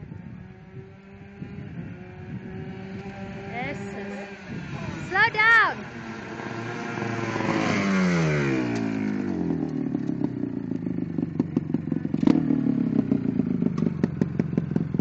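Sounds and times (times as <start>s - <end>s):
go-kart engine: 0.0s - 15.0s.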